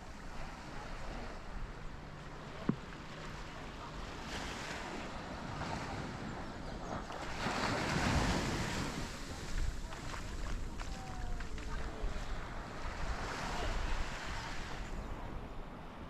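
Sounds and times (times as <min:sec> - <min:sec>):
small waves breaking on sand: 0:00.0 - 0:16.0
wind buffeting microphone: 0:05.2 - 0:15.9.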